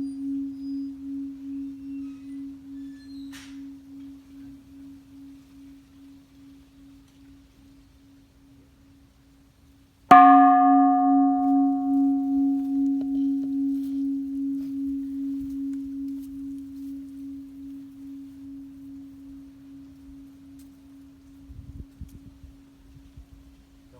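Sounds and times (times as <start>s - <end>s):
metal bell ringing: 10.1s - 20.6s.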